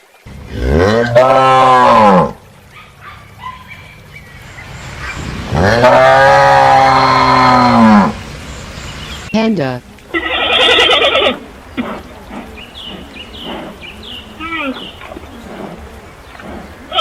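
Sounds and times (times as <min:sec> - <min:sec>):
cow mooing: 0:00.5 - 0:02.3, 0:05.5 - 0:08.2, 0:10.1 - 0:17.0.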